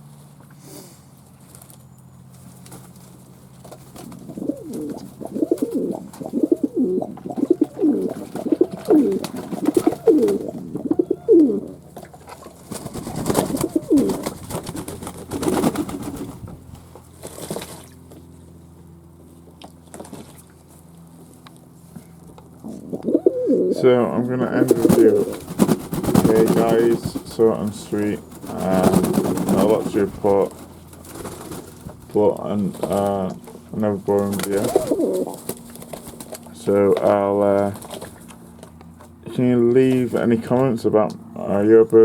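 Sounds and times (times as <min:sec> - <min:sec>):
pigeons cooing: 0:03.6 - 0:16.8, 0:22.6 - 0:38.4.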